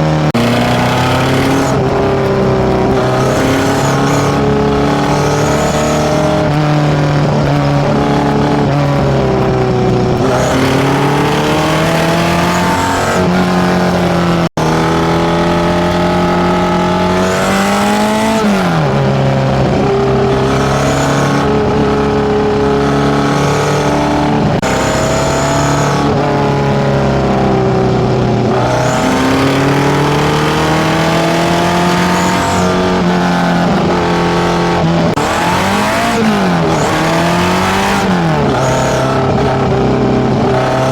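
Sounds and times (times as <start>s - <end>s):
loud four-cylinder engine revving: 0.0s - 40.9s.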